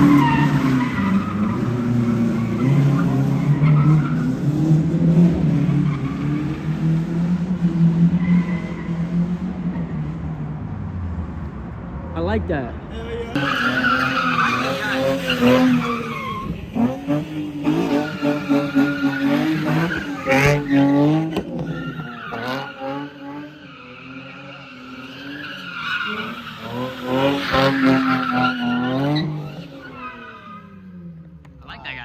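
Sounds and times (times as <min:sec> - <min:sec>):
tyres squealing: 0:12.9 - 0:30.8
car engine revving hard: 0:13.4 - 0:25.3, 0:26.0 - 0:30.6.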